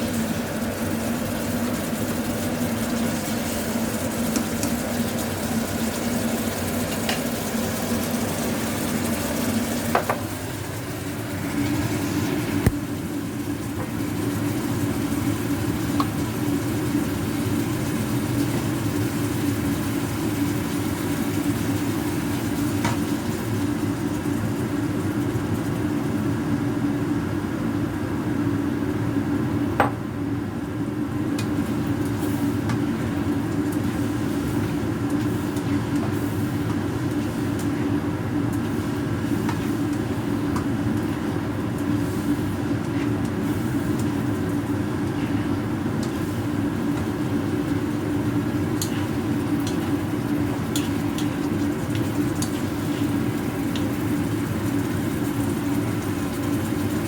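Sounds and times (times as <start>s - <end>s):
food sizzling in a pan: 31.4s - 57.0s.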